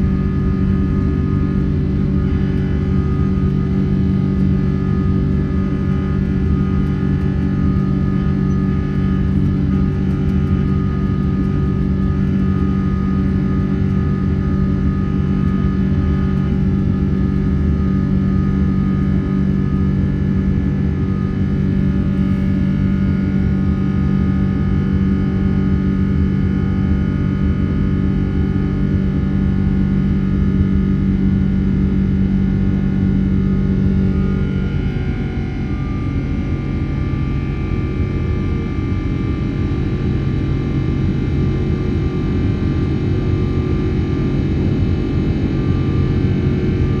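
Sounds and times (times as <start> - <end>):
jet engines droning in cabin: 0.0 - 47.0.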